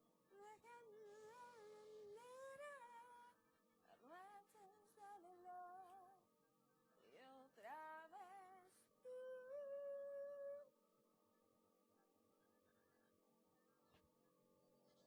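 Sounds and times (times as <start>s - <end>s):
woman singing quietly: 0.0s - 6.3s, 7.0s - 10.7s.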